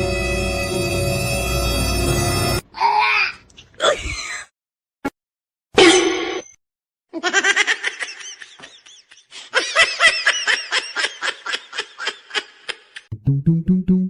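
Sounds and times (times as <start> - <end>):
person laughing rapidly: 7.2 - 13.1.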